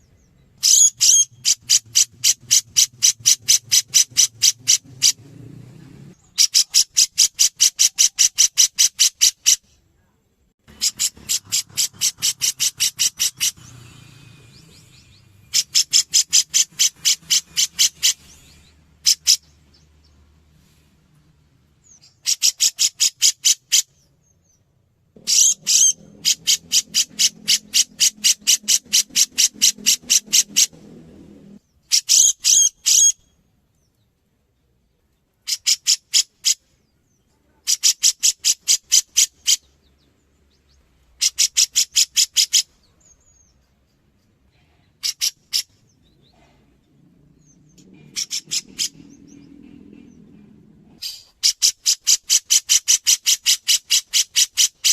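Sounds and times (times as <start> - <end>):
bulbul calling: 0.0 - 5.3, 10.7 - 20.2, 25.2 - 31.0, 31.8 - 33.4, 47.3 - 54.9.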